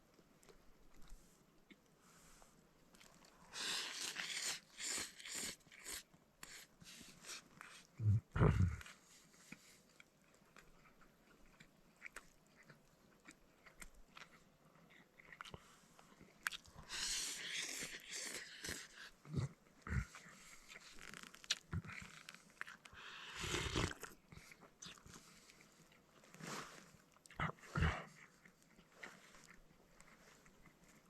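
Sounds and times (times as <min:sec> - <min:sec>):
person chewing and biting: 0:02.9 - 0:07.9, 0:08.6 - 0:26.0.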